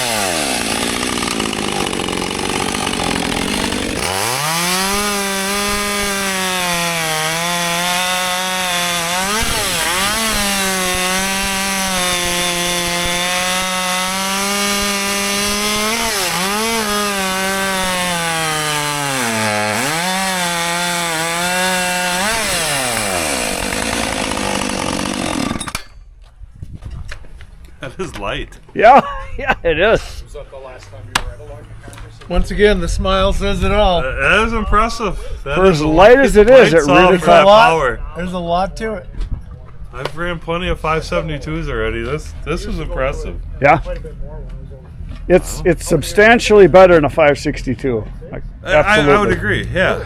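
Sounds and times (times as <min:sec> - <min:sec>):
chainsaw cutting at high revs: 0:00.0 - 0:26.0, 0:36.6 - 0:37.6, 0:48.7 - 0:50.0.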